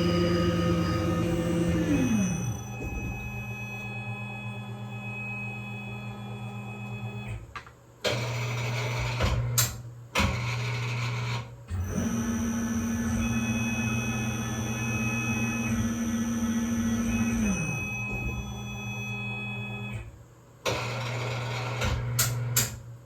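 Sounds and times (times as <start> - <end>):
lathe spindle whine: 0.0 - 7.3.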